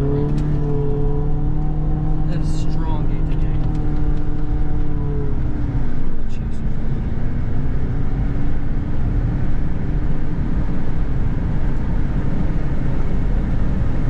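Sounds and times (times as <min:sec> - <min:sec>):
car road noise: 0:00.0 - 0:14.0.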